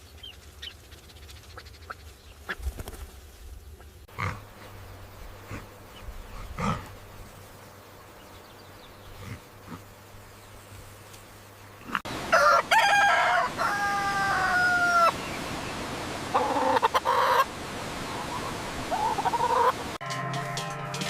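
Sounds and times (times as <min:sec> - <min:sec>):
rooster crowing: 0:12.2 - 0:15.2.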